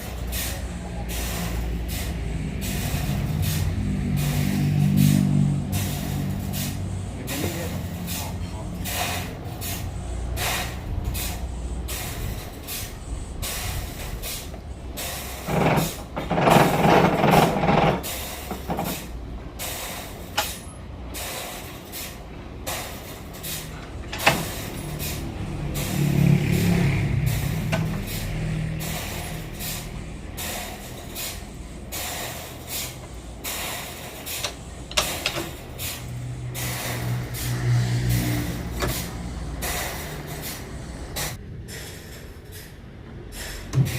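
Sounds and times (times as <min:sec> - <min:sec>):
sawmill machinery rumbling: 0:00.0 - 0:43.9
knocks and clatter: 0:15.4 - 0:19.1.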